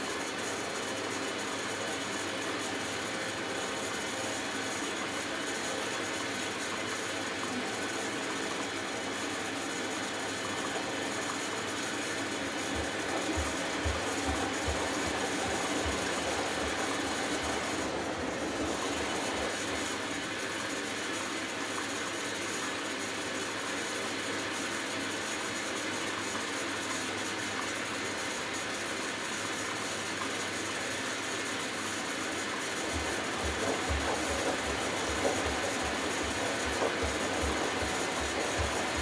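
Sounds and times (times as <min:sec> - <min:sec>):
washing machine motor running: 0:00.0 - 0:22.1, 0:31.9 - 0:39.0
water swishing in washing machine: 0:03.1 - 0:20.9, 0:32.3 - 0:39.0.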